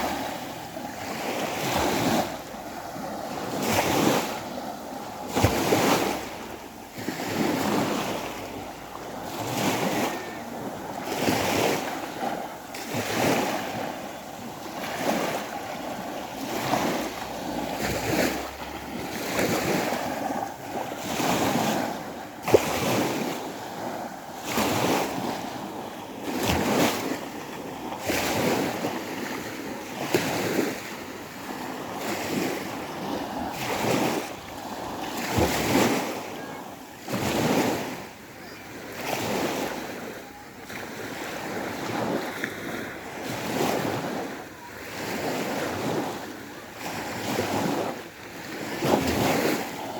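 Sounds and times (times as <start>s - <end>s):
small waves washing onto shore: 0.0s - 49.9s.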